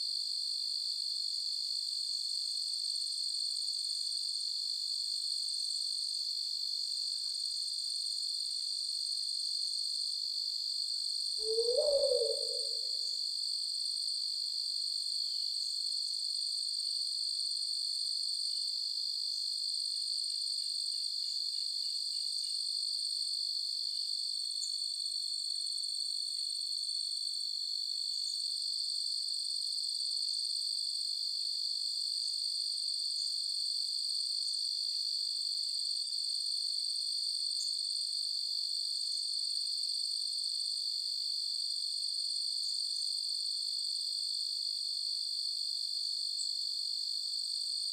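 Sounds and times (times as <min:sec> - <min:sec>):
crickets trilling: 0:11.4 - 0:13.2.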